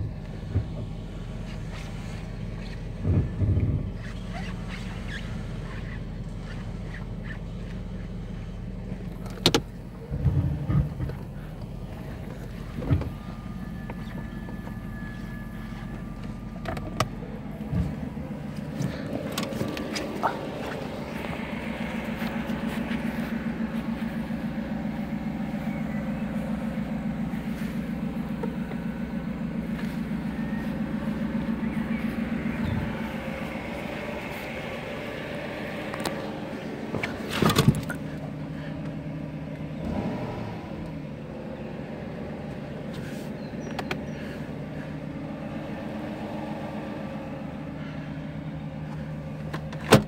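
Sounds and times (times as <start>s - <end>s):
car engine idling: 0.0s - 50.0s
exhaust pulse: 10.0s - 49.4s.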